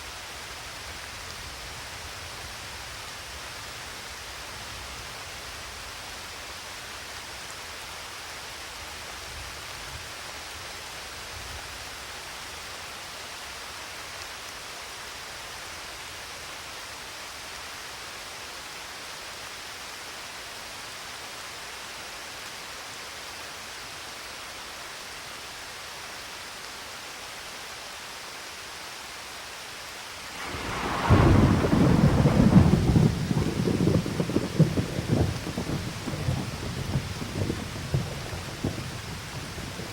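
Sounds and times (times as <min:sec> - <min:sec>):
steady rain falling: 0:00.0 - 0:39.9
thunder clap rumbling: 0:30.4 - 0:39.9.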